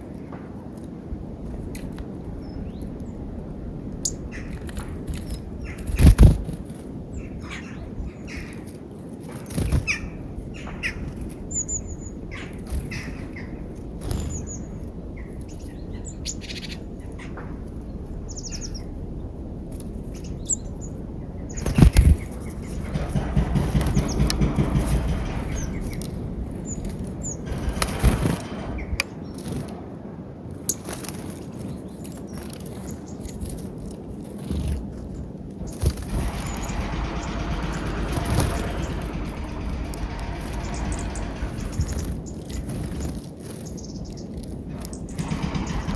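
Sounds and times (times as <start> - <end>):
birds wings flapping: 21.5 - 29.8, 35.7 - 44.0.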